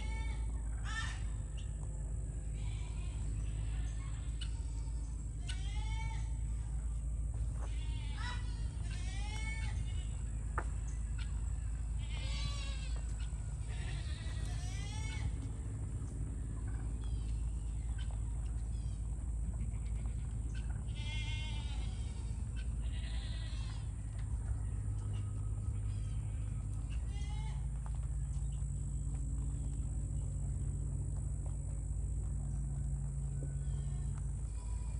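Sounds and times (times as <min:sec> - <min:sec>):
steady low rumble: 0:00.0 - 0:34.9
farm animals bleating: 0:02.5 - 0:06.7, 0:07.4 - 0:10.6, 0:11.2 - 0:28.2, 0:33.4 - 0:34.9.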